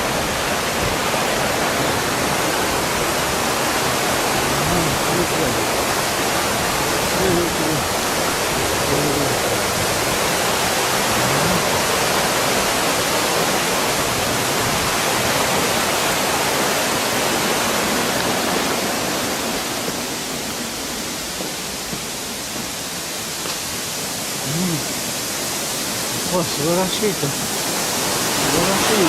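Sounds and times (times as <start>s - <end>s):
waterfall and stream rushing: 0.0s - 29.0s.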